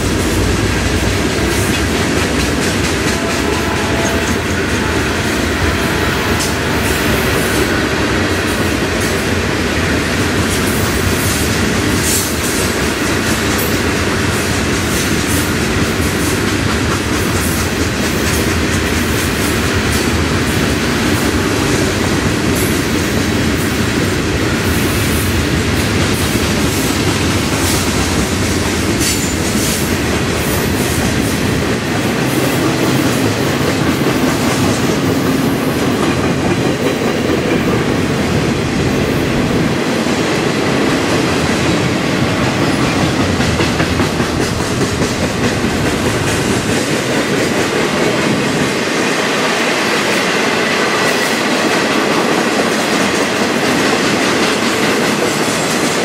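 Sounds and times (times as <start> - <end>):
wheels clacking over rail joints: 0.0 - 7.8
train wheels rolling on rail: 0.0 - 56.0.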